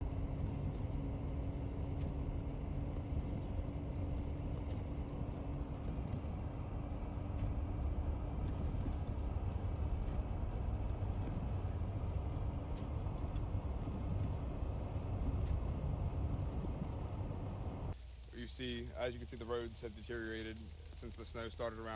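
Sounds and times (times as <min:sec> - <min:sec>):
engine and road rumble: 0:00.0 - 0:21.9
faint ticks: 0:00.0 - 0:21.9
steady hum: 0:00.0 - 0:21.9.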